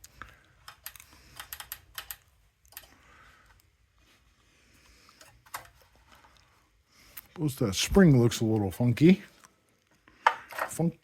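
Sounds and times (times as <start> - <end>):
light clicks and ticks: 0.0 - 3.7.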